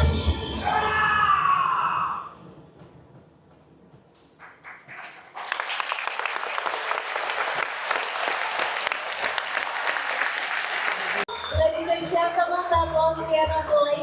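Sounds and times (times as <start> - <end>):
audience applause: 4.5 - 11.7.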